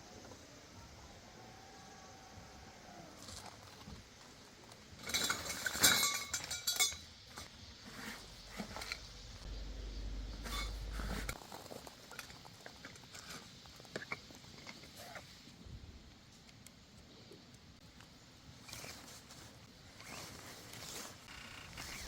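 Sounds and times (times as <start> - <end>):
low rumble: 8.1 - 11.4.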